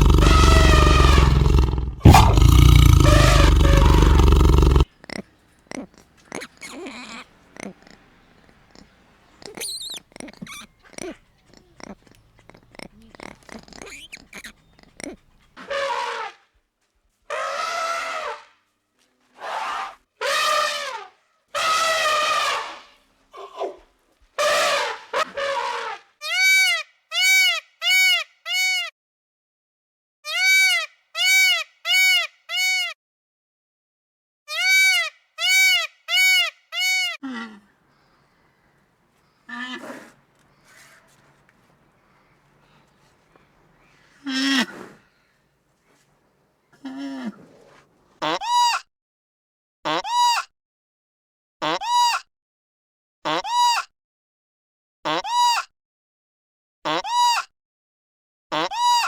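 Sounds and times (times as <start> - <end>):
drawn-out bleat-like animal calls: 0.0 - 15.4.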